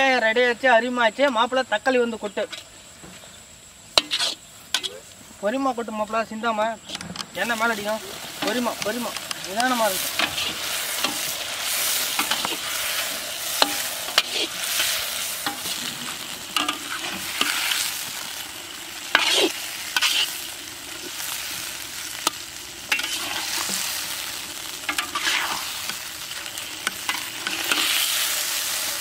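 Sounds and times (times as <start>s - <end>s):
vegetables sizzling in hot oil: 0.0s - 29.0s
metal spatula scraping a pan: 3.9s - 5.0s, 6.8s - 18.4s, 19.0s - 21.2s, 22.1s - 29.0s.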